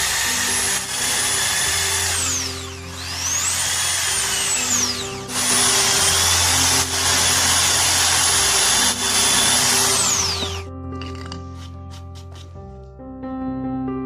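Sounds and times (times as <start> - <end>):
electric drill whining: 0.0 - 10.7
background music low notes: 0.0 - 14.0.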